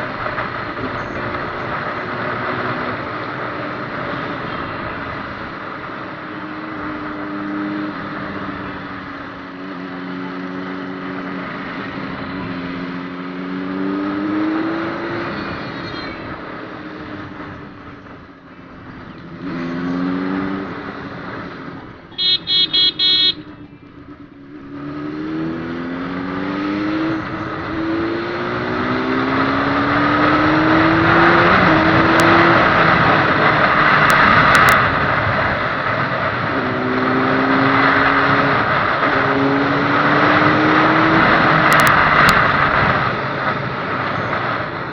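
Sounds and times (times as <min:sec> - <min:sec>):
motorcycle engine accelerating: 0:00.0 - 0:44.9
horn tooting: 0:22.1 - 0:23.7.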